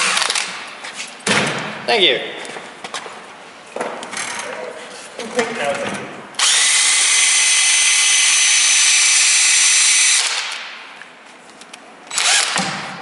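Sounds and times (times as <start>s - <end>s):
power drill whining: 6.4s - 10.4s, 12.1s - 12.6s.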